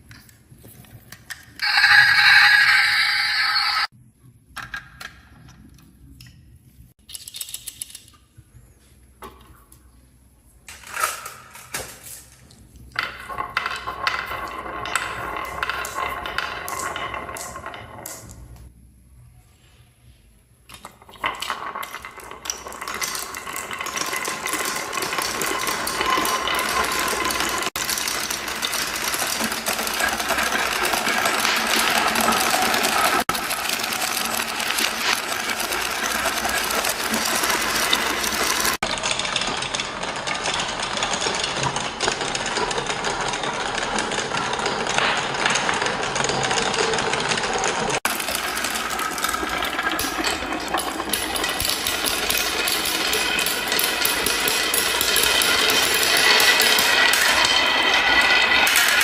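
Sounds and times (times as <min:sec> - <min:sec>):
marbles rattling down wooden track: 0:01.6 - 0:03.9, 0:12.9 - 0:18.7, 0:20.7 - 0:59.0.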